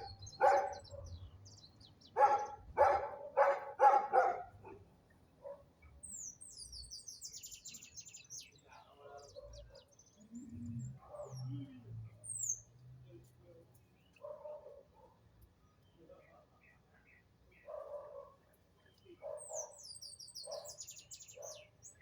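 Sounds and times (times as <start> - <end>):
dog barking: 0.0 - 1.2, 2.1 - 5.7, 9.2 - 9.9, 11.0 - 11.5, 14.2 - 15.2, 17.6 - 18.5, 19.2 - 21.8
small birds chirping: 0.0 - 22.0.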